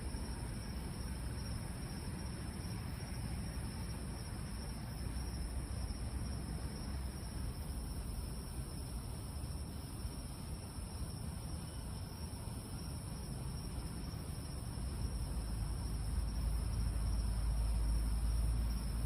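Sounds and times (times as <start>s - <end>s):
night insects chorus: 0.0s - 19.0s
low vehicle rumble: 13.1s - 19.0s.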